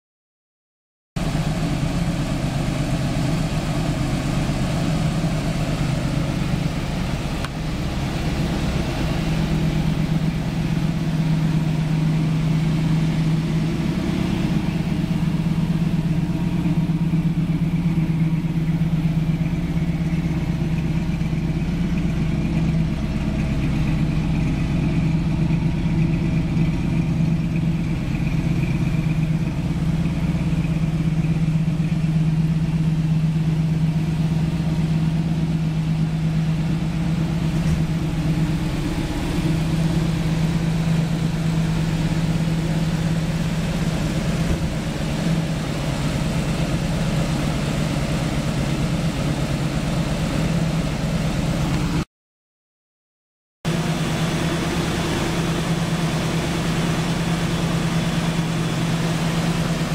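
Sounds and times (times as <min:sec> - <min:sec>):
car engine idling: 0:01.2 - 0:52.1, 0:53.7 - 0:59.9.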